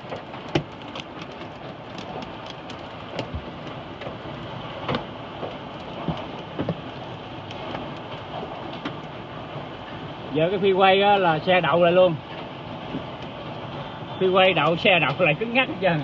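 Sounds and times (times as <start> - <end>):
hailstones hitting car body and glass: 0.0 - 9.1
heavy rain on a car: 0.0 - 16.0.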